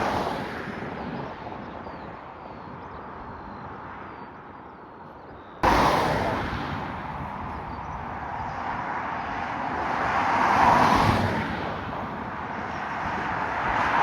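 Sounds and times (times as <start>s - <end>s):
jet aircraft engines rushing: 5.6s - 14.0s.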